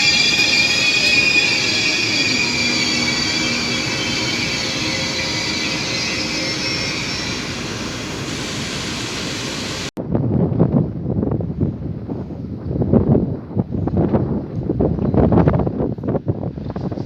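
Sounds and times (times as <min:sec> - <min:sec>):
high wheel squeal: 0:00.0 - 0:09.9
train rail noise: 0:00.0 - 0:09.9
wind buffeting microphone: 0:00.0 - 0:17.0.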